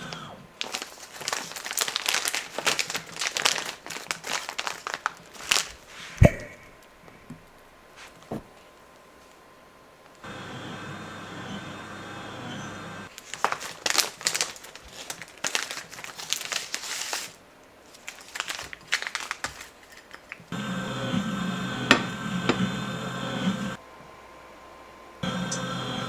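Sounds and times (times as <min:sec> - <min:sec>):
crinkling and rustling: 0:00.0 - 0:10.2, 0:13.1 - 0:20.6
steady hum: 0:20.5 - 0:26.0.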